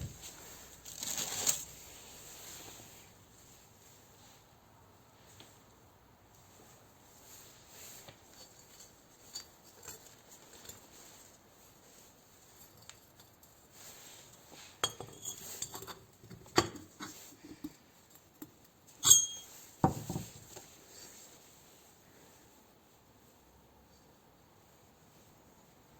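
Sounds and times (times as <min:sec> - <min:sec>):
metal tools clinking: 0:08.3 - 0:11.3, 0:14.3 - 0:17.2, 0:19.0 - 0:20.4.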